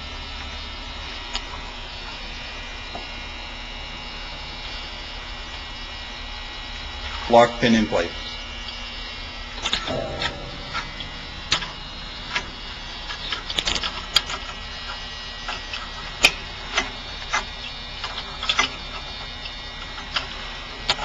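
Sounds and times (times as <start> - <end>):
steady background noise: 0.0 - 21.0
sharp knock: 9.9 - 12.6.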